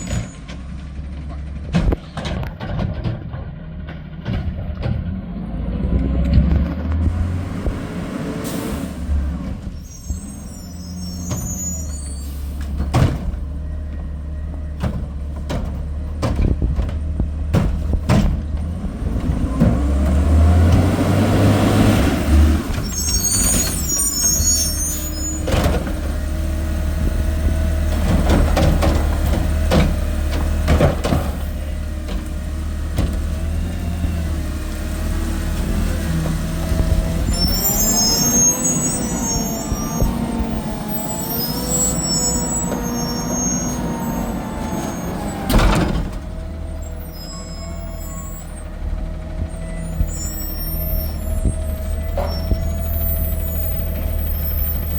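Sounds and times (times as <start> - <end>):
air brake squeals: 0.0 - 0.5, 8.4 - 14.8, 22.2 - 26.2, 37.2 - 46.0, 46.7 - 48.8, 49.5 - 54.9
garbage truck diesel engine: 0.0 - 54.9
sharp knocks and bangs: 14.8 - 20.0.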